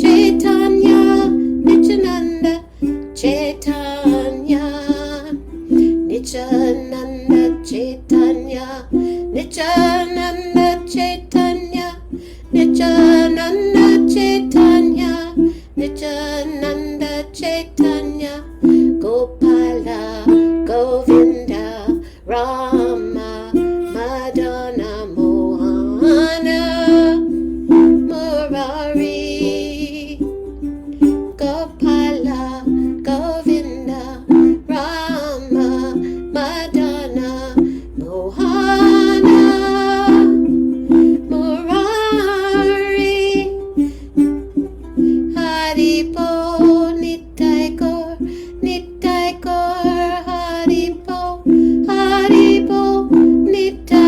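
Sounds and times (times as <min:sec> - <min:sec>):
strummed stringed instrument: 0:00.0 - 0:54.0
devotional chanting: 0:31.4 - 0:40.5.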